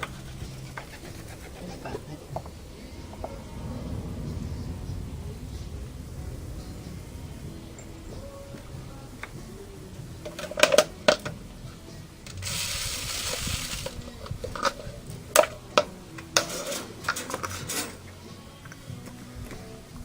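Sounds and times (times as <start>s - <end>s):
steady hiss: 0.0s - 17.0s
sharp clicks and clatters: 12.3s - 14.8s.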